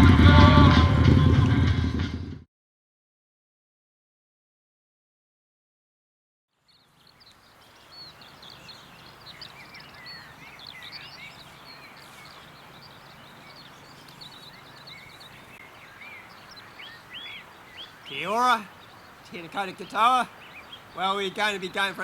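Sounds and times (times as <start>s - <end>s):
small birds chirping: 6.5s - 22.0s.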